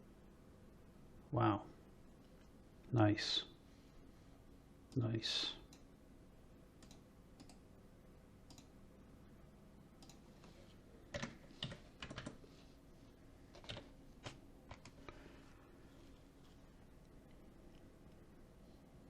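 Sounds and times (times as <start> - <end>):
computer keyboard taps: 11.1 - 12.4, 13.5 - 15.0.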